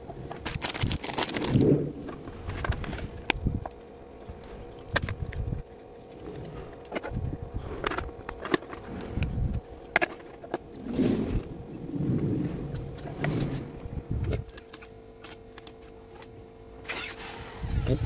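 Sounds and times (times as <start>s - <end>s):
faint steady hum: 0.0s - 18.0s
low rubbing sounds: 10.6s - 14.3s.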